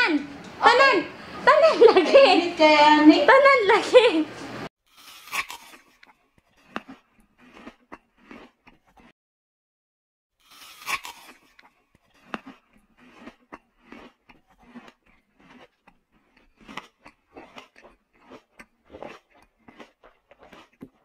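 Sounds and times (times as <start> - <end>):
person biting and chewing: 4.8 - 9.1, 10.4 - 21.0.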